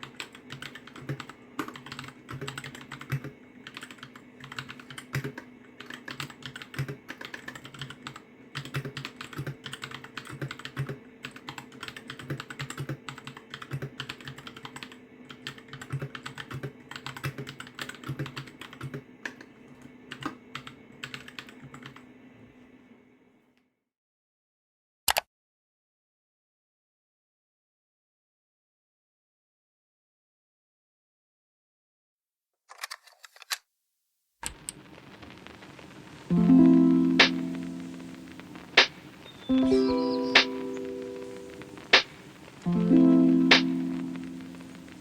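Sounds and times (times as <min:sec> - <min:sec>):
mechanical keyboard typing: 0:00.0 - 0:19.4, 0:20.1 - 0:22.0.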